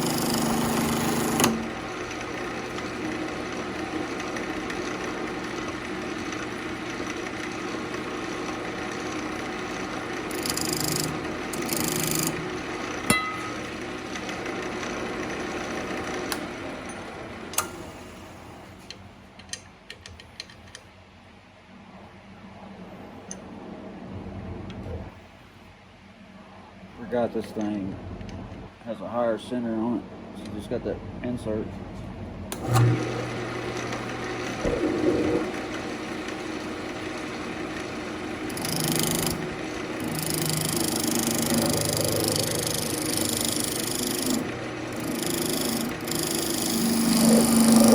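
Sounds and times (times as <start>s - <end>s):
wood lathe humming: 0.0s - 17.7s, 32.6s - 47.9s
turning tool scraping wood: 38.2s - 47.9s.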